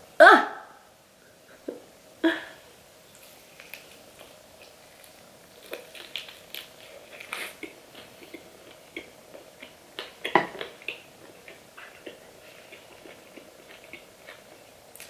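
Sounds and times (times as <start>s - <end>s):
crunching fried chicken: 3.1s - 15.0s.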